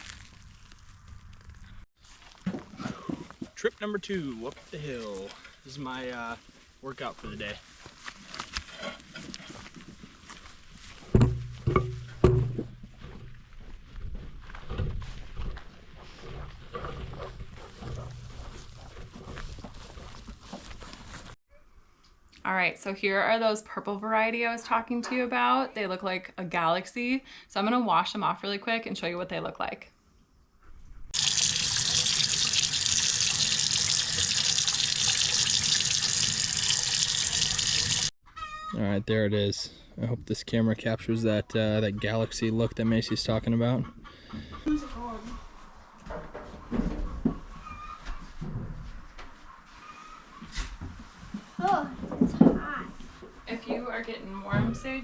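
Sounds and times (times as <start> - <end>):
footsteps: 7.7 - 21.4
water running from a tap: 31.2 - 38.2.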